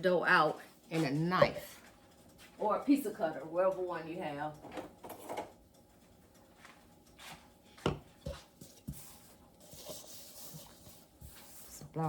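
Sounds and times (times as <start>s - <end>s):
utensils rubbing and scraping: 0.4s - 5.6s, 6.5s - 12.0s
utensils knocking on countertop: 7.8s - 9.0s.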